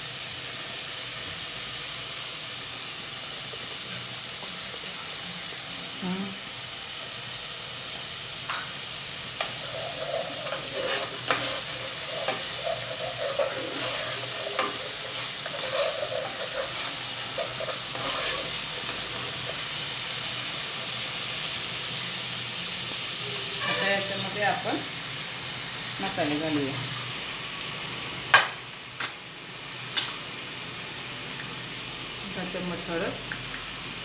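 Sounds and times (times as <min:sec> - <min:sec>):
paste sizzling in hot oil: 0:00.0 - 0:34.0
spatula scraping and tapping pot: 0:09.4 - 0:19.6.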